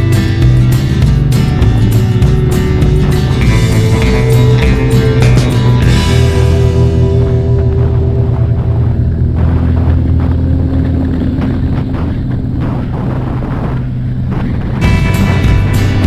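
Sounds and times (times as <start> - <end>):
music: 0.0 - 11.2, 14.8 - 16.0
engine low rumble: 0.0 - 16.0.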